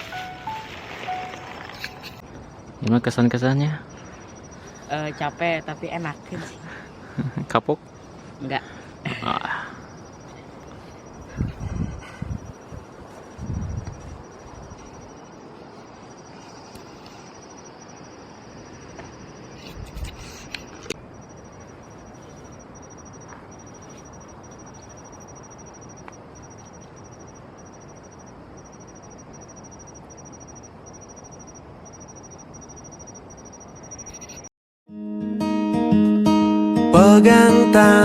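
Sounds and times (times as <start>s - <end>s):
background hiss: 0.0s - 34.4s
high-pitched insect trill: 0.0s - 34.5s.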